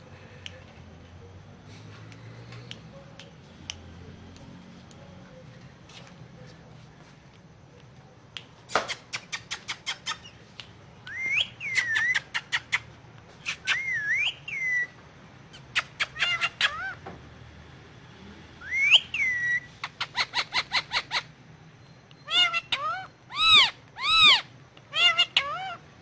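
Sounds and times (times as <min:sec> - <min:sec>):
parakeet chipping calls: 0:11.1 - 0:17.0, 0:18.6 - 0:25.8
parakeet whistled notes: 0:18.6 - 0:19.7.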